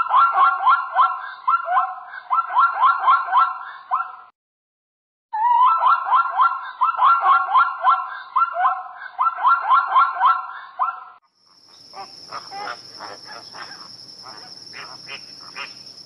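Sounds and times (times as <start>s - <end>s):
high insect trill: 11.4s - 16.0s
zebras barking: 11.8s - 15.8s.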